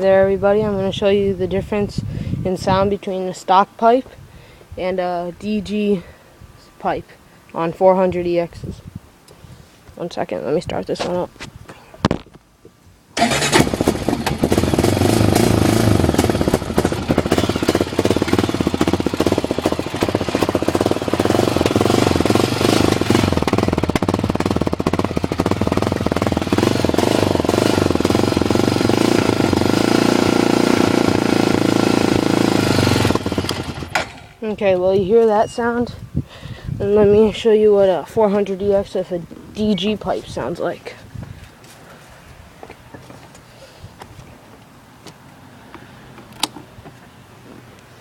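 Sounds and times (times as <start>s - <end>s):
atv engine starting and running: 13.2s - 35.8s, 46.1s - 47.9s.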